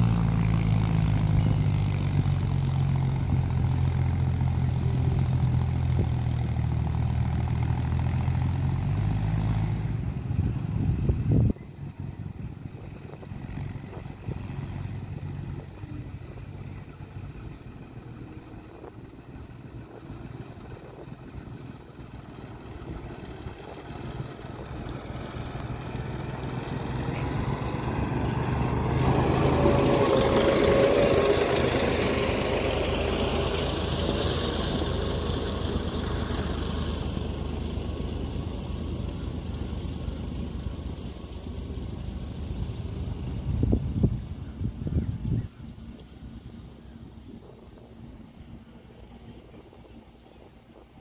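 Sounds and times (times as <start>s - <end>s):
train wheels rumbling on rails: 12.9s - 51.0s.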